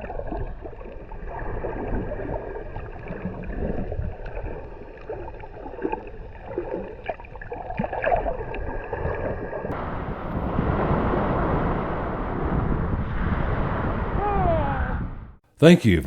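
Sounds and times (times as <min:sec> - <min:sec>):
muffled water sloshing and gurgling: 0:00.0 - 0:09.7
rushing wind or surf: 0:09.7 - 0:15.3.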